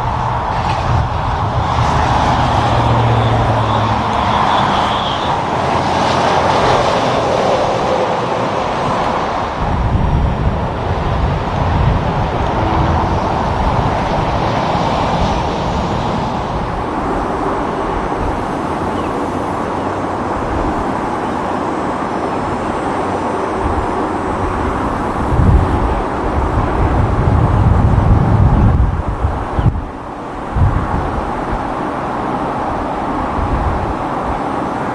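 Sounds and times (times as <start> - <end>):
deep truck engine rumble: 0.0 - 7.3, 8.2 - 20.9.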